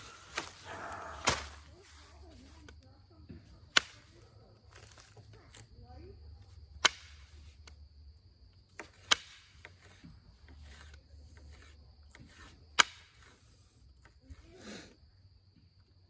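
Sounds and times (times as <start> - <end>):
stone flakes snapping off: 0.0 - 1.7
stone scraping and rubbing: 9.8 - 13.5.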